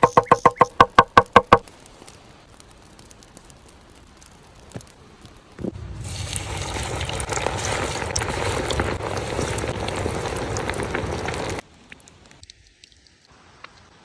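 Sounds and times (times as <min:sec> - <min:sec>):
chicken sizzling in hot oil: 0:05.7 - 0:11.6.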